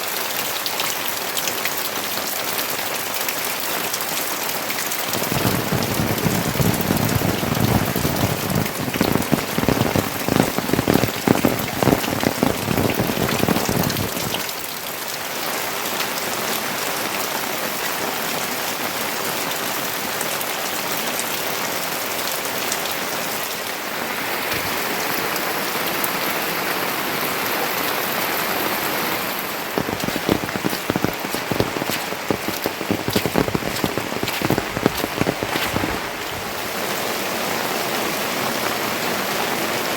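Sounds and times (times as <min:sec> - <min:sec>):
rain falling steadily: 0:00.0 - 0:39.9
heavy close pattering drops: 0:29.8 - 0:36.5.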